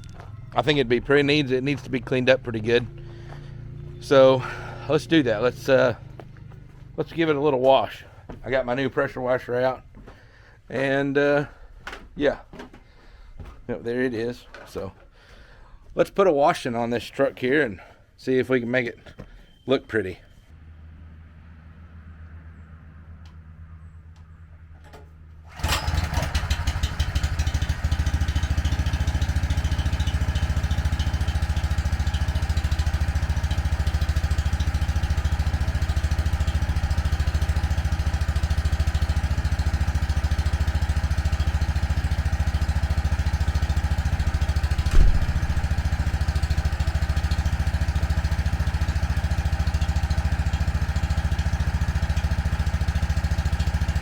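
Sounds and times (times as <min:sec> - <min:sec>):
pressure washer engine running: 0:25.5 - 0:54.0
short knock: 0:44.9 - 0:45.7.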